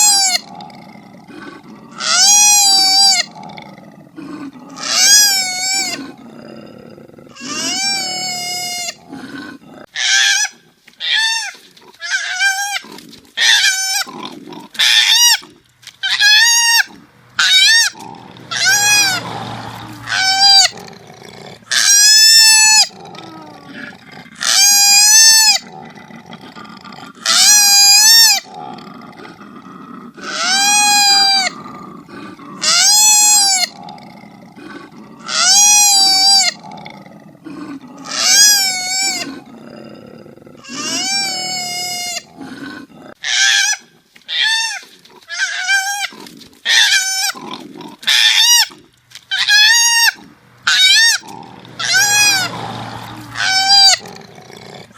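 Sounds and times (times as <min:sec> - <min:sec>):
koala wailing cries: 0:00.0 - 0:00.5, 0:02.0 - 0:03.3, 0:04.8 - 0:06.0, 0:07.4 - 0:09.0, 0:09.9 - 0:12.8, 0:16.0 - 0:20.8, 0:21.7 - 0:23.7, 0:24.4 - 0:25.6, 0:27.3 - 0:28.5, 0:30.3 - 0:31.6, 0:32.6 - 0:33.8, 0:35.3 - 0:36.6, 0:38.0 - 0:39.3, 0:40.6 - 0:42.3, 0:43.3 - 0:46.1, 0:46.7 - 0:47.4, 0:49.3 - 0:54.1.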